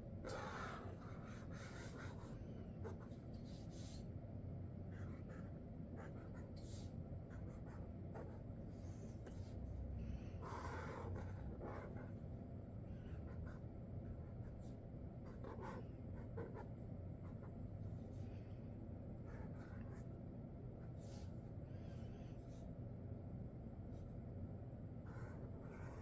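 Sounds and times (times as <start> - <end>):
low steady hum: 0.0 - 26.0
marker scratching on paper: 0.3 - 4.0, 4.9 - 9.5, 10.4 - 12.2, 13.3 - 18.1, 19.3 - 20.0, 25.1 - 26.0.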